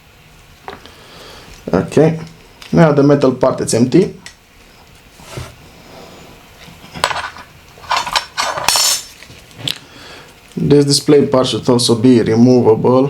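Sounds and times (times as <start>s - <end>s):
small metal parts clinking: 7.0s - 9.2s.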